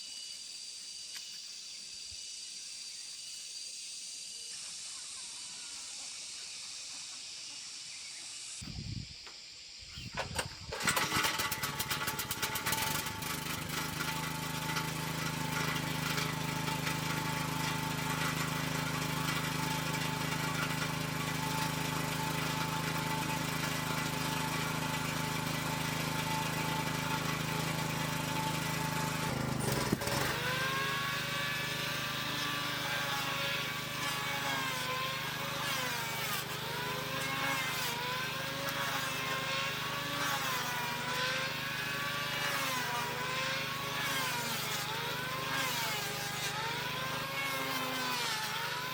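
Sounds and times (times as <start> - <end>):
motor speed rising and falling: 10.0 - 48.9
engine running: 10.2 - 47.7.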